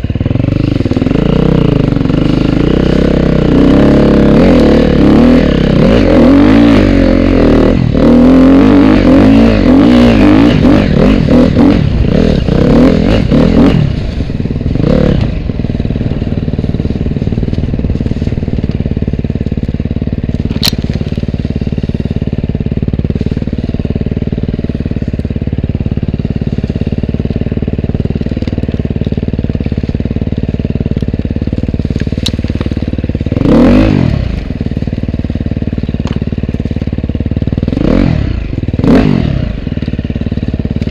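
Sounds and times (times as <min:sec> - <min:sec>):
motorcycle engine revving and idling: 0:00.0 - 0:40.9.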